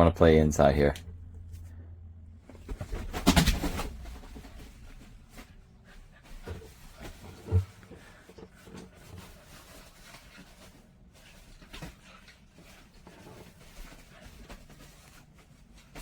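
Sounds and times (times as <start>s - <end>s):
heavy low thump: 0.9s - 5.6s.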